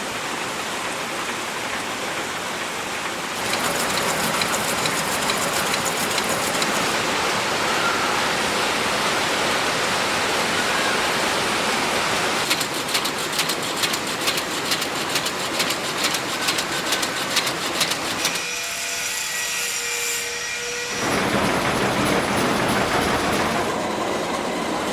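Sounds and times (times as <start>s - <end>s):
factory machines clattering: 1.0s - 7.5s, 12.4s - 18.6s, 21.0s - 24.9s
rapid machine clicking: 3.4s - 7.1s, 12.4s - 18.4s, 21.0s - 23.8s.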